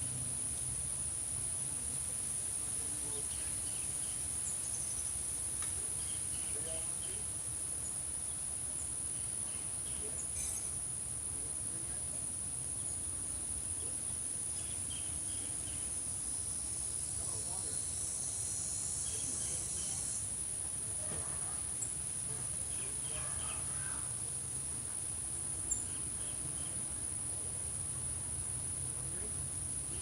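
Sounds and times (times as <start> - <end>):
crickets trilling: 0.0 - 30.0
small bird chirping: 25.6 - 26.9.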